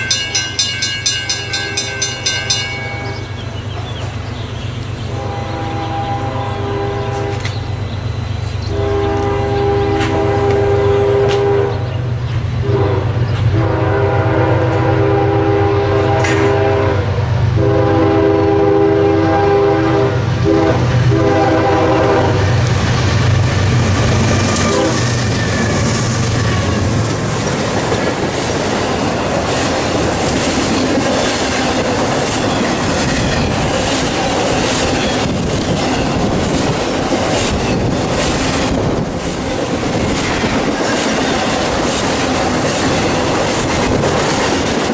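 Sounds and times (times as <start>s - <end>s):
train wheels clattering on rails: 0.0s - 18.7s, 19.4s - 44.9s
locomotive engine rumble: 0.0s - 44.9s
locomotive horn blasts: 1.3s - 3.4s, 5.1s - 7.5s, 8.6s - 12.0s, 12.6s - 22.6s, 24.5s - 25.2s.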